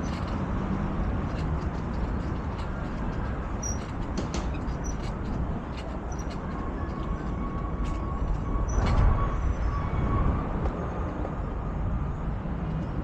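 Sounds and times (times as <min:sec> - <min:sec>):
light clicks and rattles: 0:00.0 - 0:09.1
wind and road rumble: 0:00.0 - 0:13.0.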